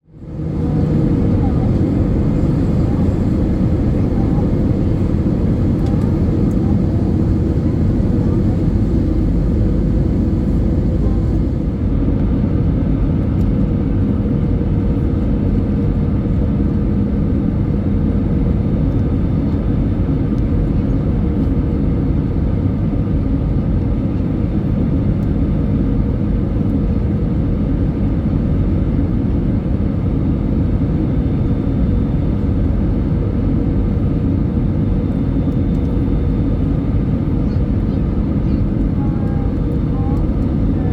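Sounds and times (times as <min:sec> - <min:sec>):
constant low hum: 0:00.0 - 0:12.2, 0:32.4 - 0:40.9
airplane cabin engine rumble: 0:00.0 - 0:12.3, 0:29.5 - 0:40.9.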